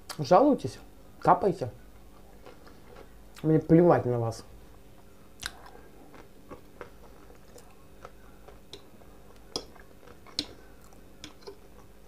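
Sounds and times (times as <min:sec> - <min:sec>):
chewing fried potatoes: 0:02.0 - 0:03.6, 0:04.7 - 0:12.0
wet mouth smacks: 0:05.4 - 0:05.8
fork clicking on glass plate: 0:09.5 - 0:10.6, 0:11.2 - 0:11.6.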